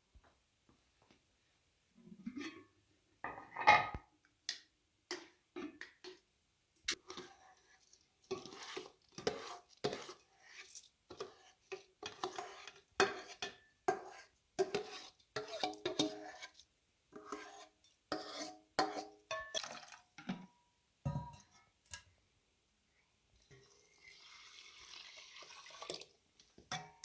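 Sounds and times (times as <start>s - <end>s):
metal utensils clinking and scraping: 8.3s - 16.6s.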